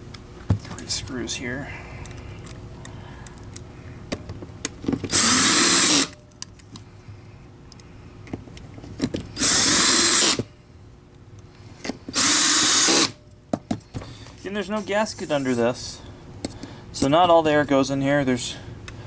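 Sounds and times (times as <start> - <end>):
electric drill driving screws: 5.1 - 6.2, 9.4 - 10.5, 12.1 - 13.2.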